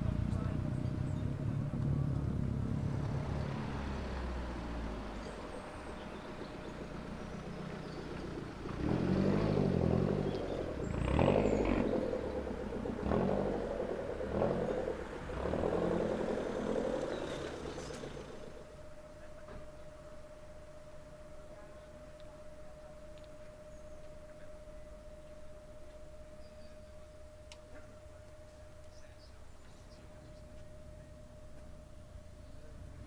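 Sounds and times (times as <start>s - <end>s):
car engine revving: 0.0s - 18.7s.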